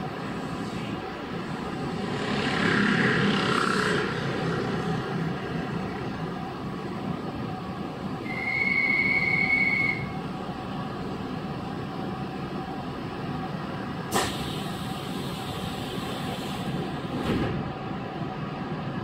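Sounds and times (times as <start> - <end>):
train running rumble: 0.0 - 19.0
high steady squeal: 8.2 - 10.2.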